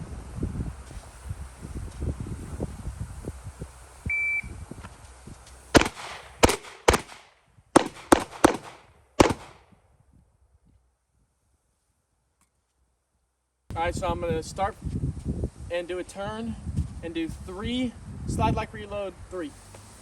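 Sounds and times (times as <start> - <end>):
wind noise: 0.0 - 11.4, 13.7 - 20.0
shot timer beep: 4.1 - 4.5
pistol shots: 5.7 - 9.6.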